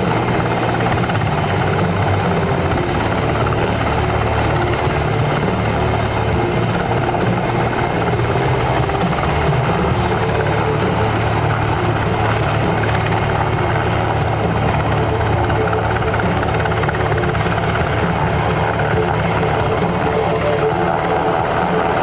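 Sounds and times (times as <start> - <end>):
helicopter engine whine: 0.0 - 22.0
helicopter rotor chop: 0.0 - 22.0.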